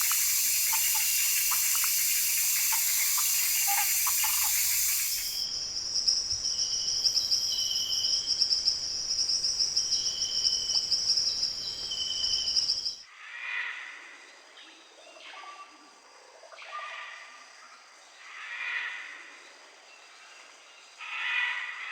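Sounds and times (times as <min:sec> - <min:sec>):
whistled bird notes: 0:00.0 - 0:05.6
insect trill: 0:00.0 - 0:13.0.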